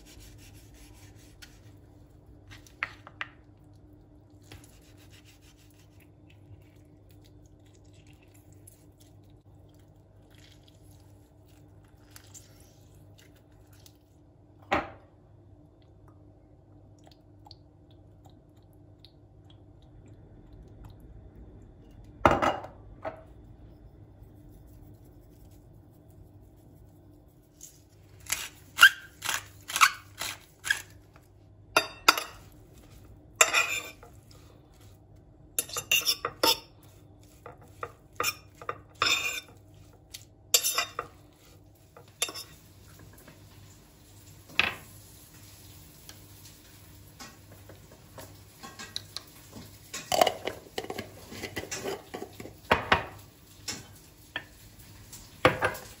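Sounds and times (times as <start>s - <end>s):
faint steady hum: 0.0s - 56.0s
utensils clinking against dishes: 40.6s - 41.1s.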